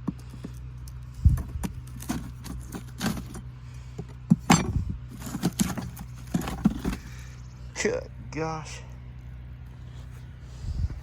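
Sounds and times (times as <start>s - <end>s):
steady low hum: 0.0s - 11.0s
wooden hive frames knocking and scraping: 1.2s - 7.3s.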